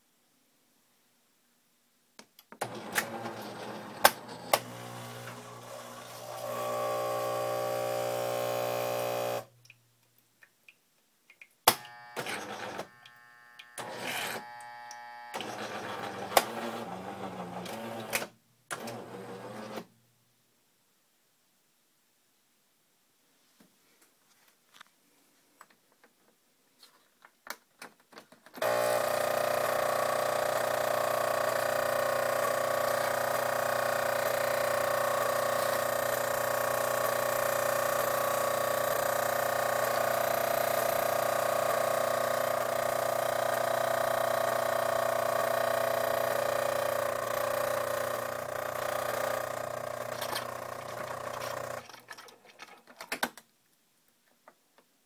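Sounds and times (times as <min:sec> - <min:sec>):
coffee machine mechanical hum: 0:02.6 - 0:09.5, 0:28.6 - 0:51.9.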